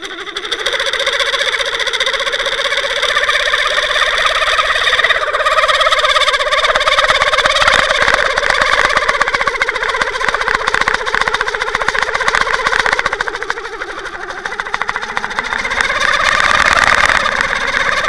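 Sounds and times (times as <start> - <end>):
boat engine heard underwater: 0.0 - 18.0.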